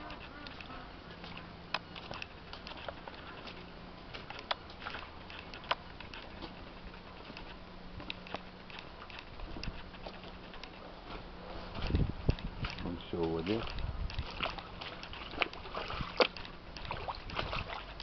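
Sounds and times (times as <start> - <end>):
water drips and splashes: 12.6 - 18.0.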